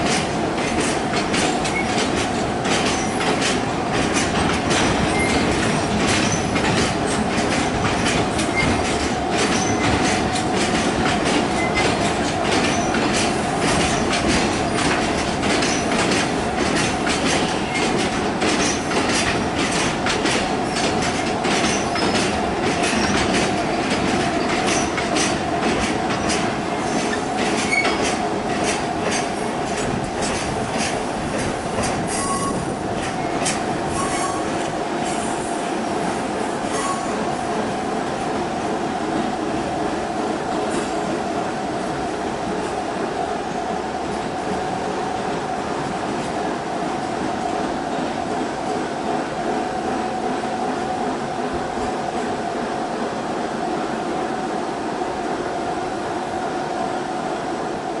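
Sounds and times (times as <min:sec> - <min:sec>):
freight train wheels clicking: 0:00.0 - 0:49.4
wheel squeal: 0:05.1 - 0:05.4, 0:26.9 - 0:28.0, 0:32.1 - 0:32.6, 0:34.0 - 0:34.5.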